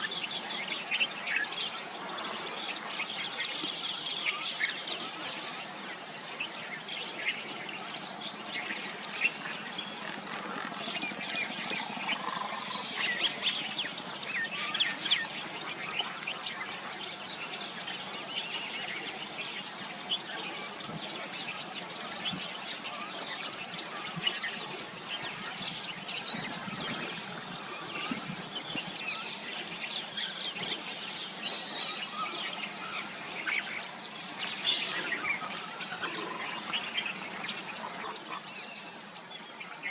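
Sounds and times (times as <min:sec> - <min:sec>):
high insect drone: 0:00.1 - 0:39.9
myna birds chattering: 0:07.8 - 0:39.2.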